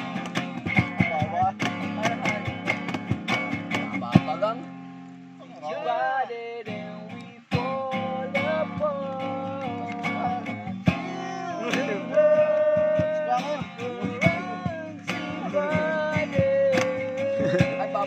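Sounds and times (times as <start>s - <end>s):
strummed acoustic guitar: 0.0s - 18.0s
person singing sliding notes: 7.1s - 18.0s.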